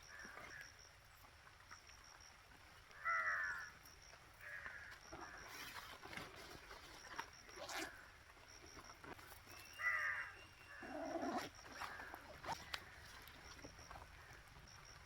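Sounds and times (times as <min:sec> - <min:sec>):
animal calling: 0:09.5 - 0:14.8.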